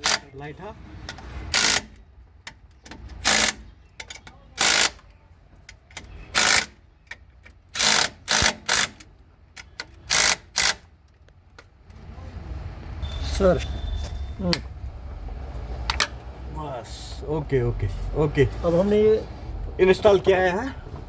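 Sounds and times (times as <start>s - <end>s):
wrench tightening bolts: 1.1s - 5.0s, 5.7s - 10.9s.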